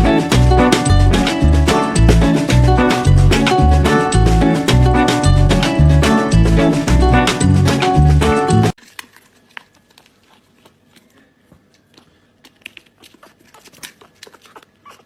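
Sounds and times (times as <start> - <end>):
music: 0.0 - 8.8
crinkling rustles: 8.8 - 15.0.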